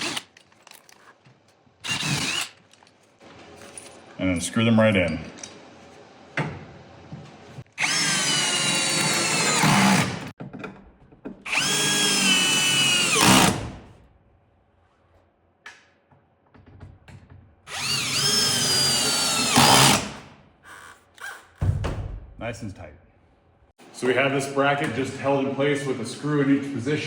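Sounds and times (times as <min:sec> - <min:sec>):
power drill driving screws: 0:00.0 - 0:00.4, 0:01.8 - 0:02.6, 0:07.8 - 0:10.3, 0:11.5 - 0:13.6, 0:17.7 - 0:21.6.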